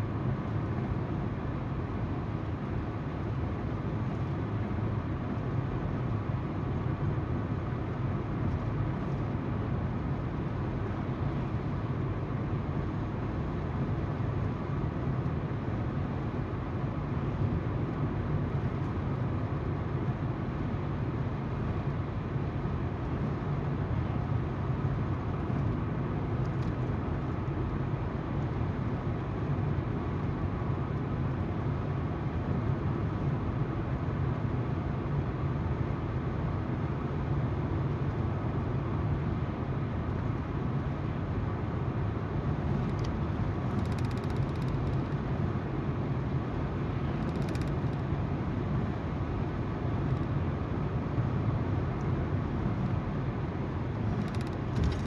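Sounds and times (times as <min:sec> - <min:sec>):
low engine hum: 0:00.0 - 0:55.0
tyre road noise: 0:52.6 - 0:55.0.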